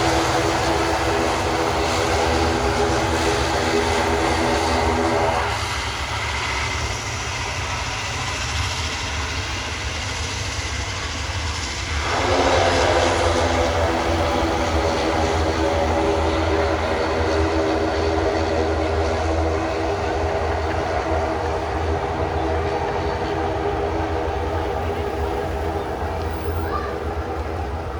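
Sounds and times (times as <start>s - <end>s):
turboprop engines droning: 0.0s - 27.9s.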